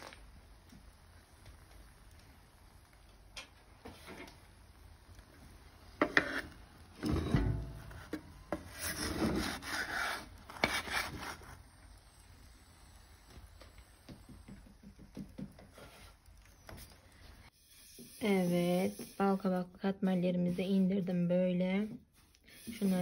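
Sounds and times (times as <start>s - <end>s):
scraping in a pan: 3.8s - 4.5s, 5.9s - 11.7s.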